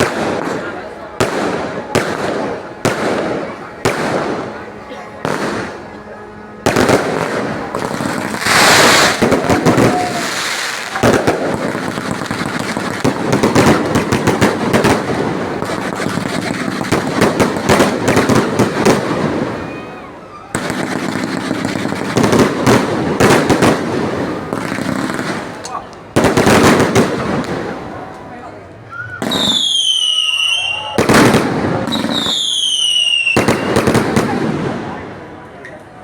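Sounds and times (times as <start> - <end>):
fireworks bangs and crackles: 0.0 - 36.0.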